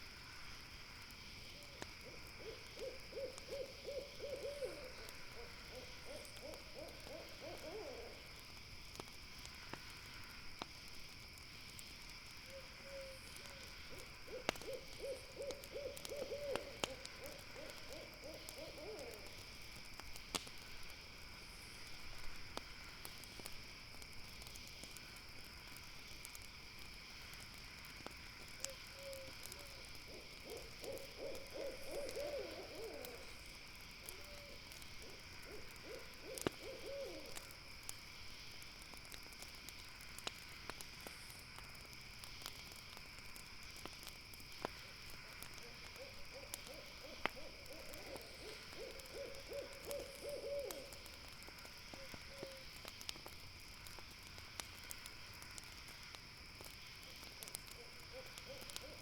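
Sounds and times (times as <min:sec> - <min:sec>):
campfire crackling: 0:00.0 - 0:59.0
owl trilling call: 0:02.4 - 0:08.2, 0:14.3 - 0:19.2, 0:30.4 - 0:33.2, 0:46.0 - 0:51.0.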